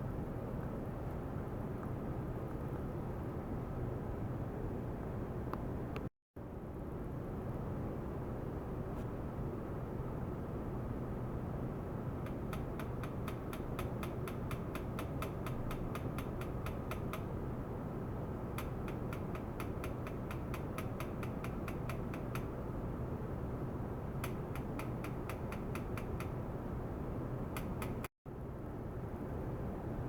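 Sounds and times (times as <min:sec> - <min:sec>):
sharp regular clicks: 0:12.2 - 0:17.4, 0:18.5 - 0:22.6, 0:24.1 - 0:26.5, 0:27.5 - 0:28.1.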